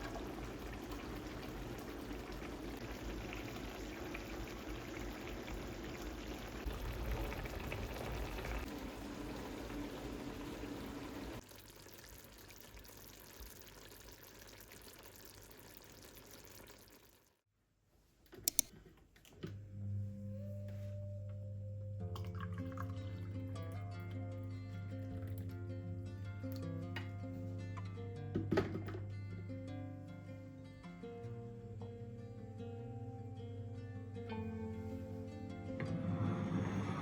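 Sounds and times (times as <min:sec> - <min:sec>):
water pouring: 0:00.0 - 0:17.4, 0:22.2 - 0:23.8
sharp clicks: 0:18.4 - 0:18.7.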